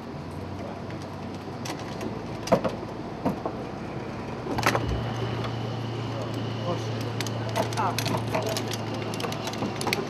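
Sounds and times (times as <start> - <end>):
steady low hum: 0.0 - 10.0
stronger hum with high tone: 3.6 - 10.0.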